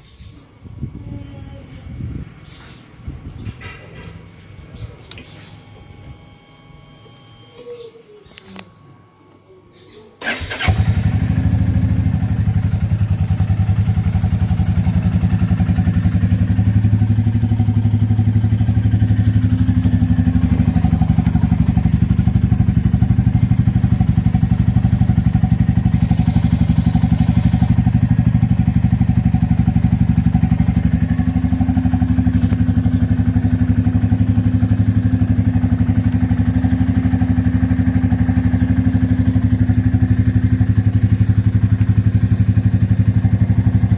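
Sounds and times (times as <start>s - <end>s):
motorcycle engine idling: 10.2s - 43.9s.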